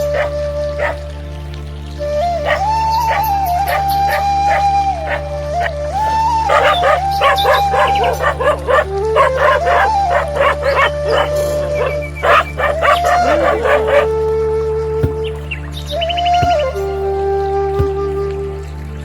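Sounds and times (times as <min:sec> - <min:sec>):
dog barking and yelping: 0:00.0 - 0:01.0, 0:02.4 - 0:05.7, 0:06.5 - 0:14.2
background music: 0:00.0 - 0:19.0.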